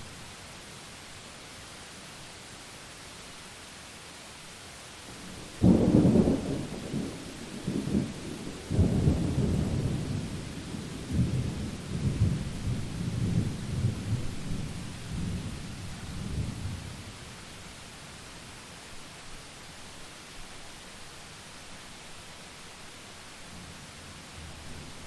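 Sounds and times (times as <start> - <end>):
steady rain hiss: 0.0 - 25.0
rolling thunder: 5.3 - 15.6.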